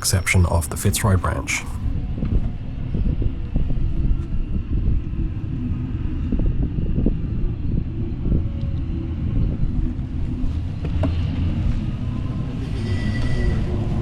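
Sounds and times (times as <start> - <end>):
wind buffeting microphone: 1.8 - 10.0.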